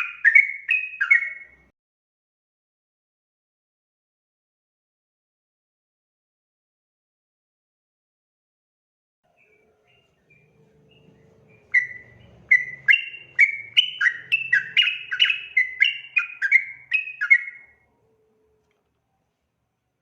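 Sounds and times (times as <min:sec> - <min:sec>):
bird singing whistled notes: 0:00.0 - 0:01.7, 0:09.4 - 0:17.9.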